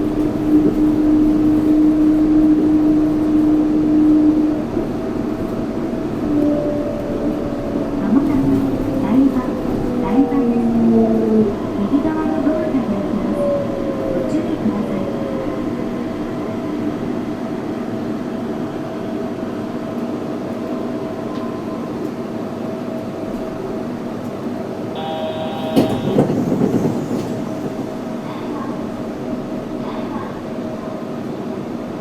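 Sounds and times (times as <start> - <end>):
train running noise: 0.0 - 32.0
short electronic tone: 25.0 - 26.4.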